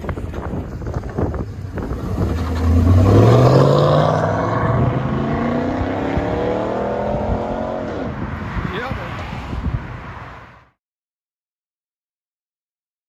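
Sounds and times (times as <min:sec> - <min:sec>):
car engine accelerating: 0:00.1 - 0:08.4.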